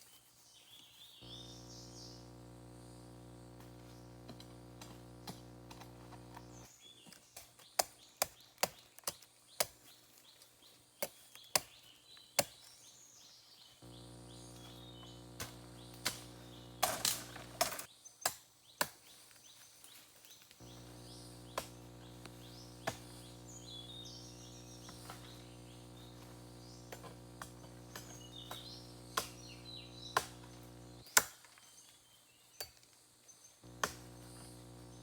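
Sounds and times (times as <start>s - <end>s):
birds chirping: 0.5s - 18.8s, 19.4s - 32.6s
steady low hum: 1.2s - 6.7s, 13.8s - 17.9s, 20.6s - 31.0s, 33.6s - 35.0s.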